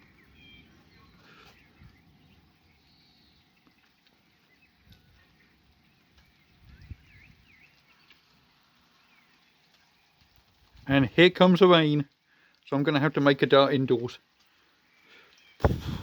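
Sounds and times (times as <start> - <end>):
faint bird chirps: 0.0 - 10.4
low thump: 15.6 - 16.0.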